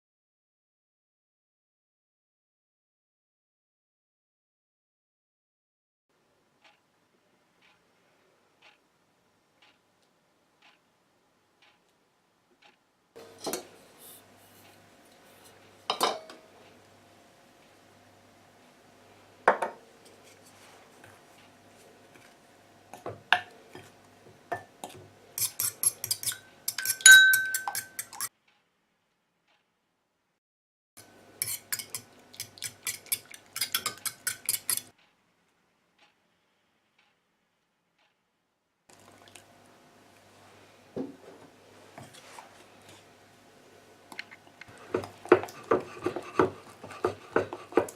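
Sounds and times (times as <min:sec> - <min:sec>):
metal utensil clinking on bowl: 0:25.4 - 0:28.3, 0:31.4 - 0:34.9.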